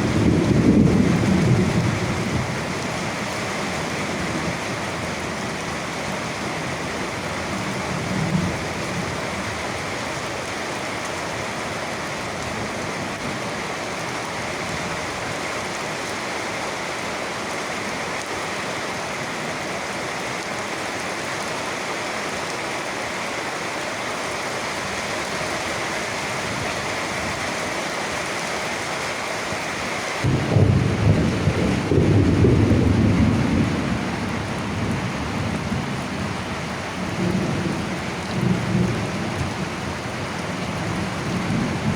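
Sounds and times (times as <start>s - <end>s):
thunder rumble: 0.0s - 2.6s, 30.2s - 36.4s
steady rain: 0.0s - 41.9s.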